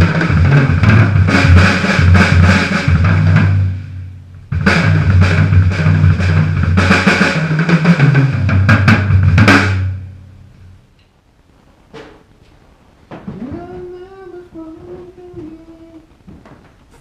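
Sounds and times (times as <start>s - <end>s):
acoustic drum kit played hard: 0.0s - 10.2s.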